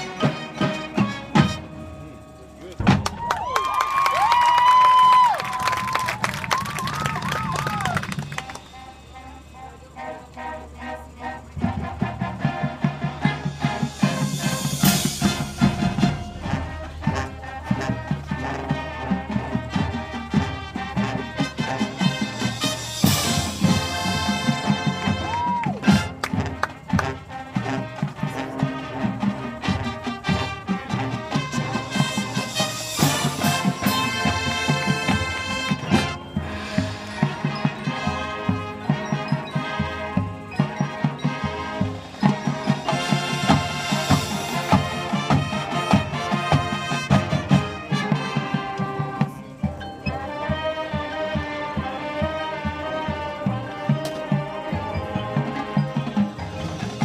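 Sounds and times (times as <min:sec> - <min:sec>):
brass sustaining chords: 0:00.0 - 0:03.2, 0:08.0 - 0:57.0
drum beats: 0:00.0 - 0:09.4, 0:11.5 - 0:57.0
marching band playing: 0:00.0 - 0:57.0.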